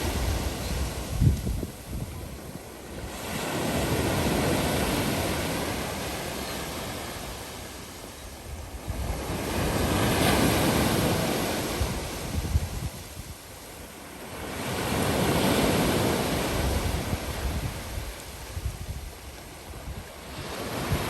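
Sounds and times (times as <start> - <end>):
wind buffeting microphone: 0.0 - 5.4, 8.4 - 13.4, 16.4 - 21.0
sea waves washing onto shore: 0.0 - 21.0.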